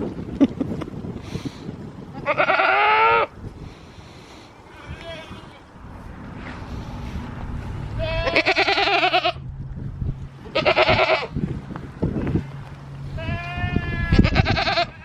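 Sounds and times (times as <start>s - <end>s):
goats bleating: 2.2s - 3.3s, 7.9s - 9.4s, 10.5s - 11.3s, 13.2s - 15.0s
steady low hum: 3.4s - 14.4s.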